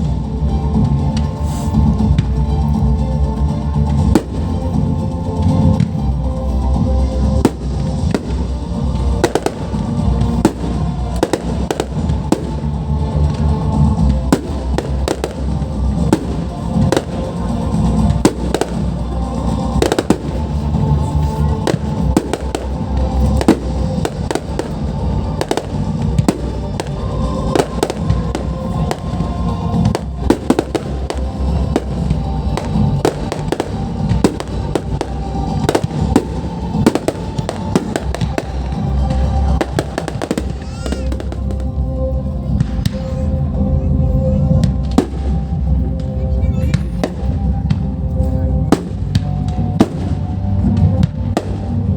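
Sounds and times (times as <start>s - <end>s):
deep rumble: 0.0s - 51.9s
fireworks bangs and crackles: 0.0s - 51.9s.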